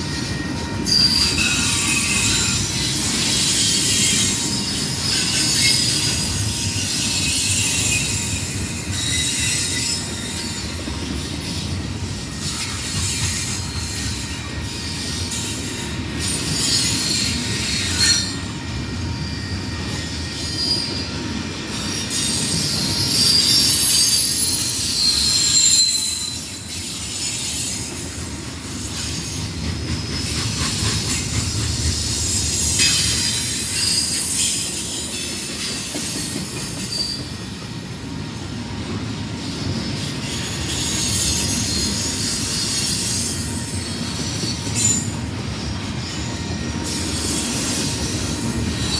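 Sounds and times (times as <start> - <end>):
freight train rumbling: 0.0 - 48.9
wheel squeal: 0.1 - 6.2, 6.8 - 10.7, 12.4 - 18.5, 21.9 - 27.9, 30.0 - 37.3.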